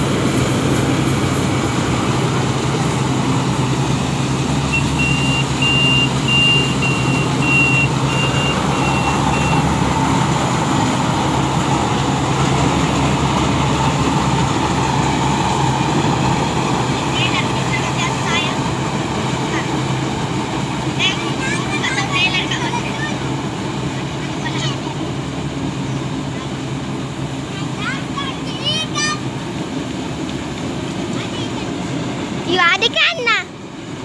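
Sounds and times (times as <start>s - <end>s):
harvester engine running: 0.0s - 34.0s
short high warning beeps: 4.7s - 9.7s.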